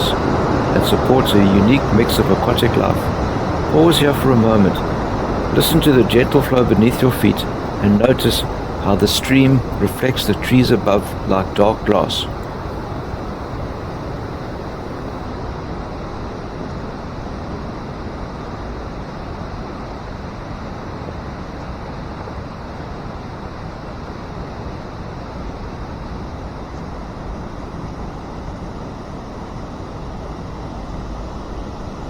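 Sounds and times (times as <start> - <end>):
stream flowing: 0.0 - 15.2.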